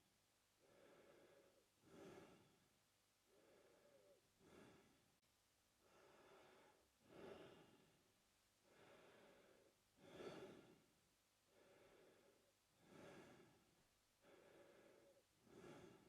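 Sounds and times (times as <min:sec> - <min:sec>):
man breathing through mouth: 0:14.2 - 0:16.0.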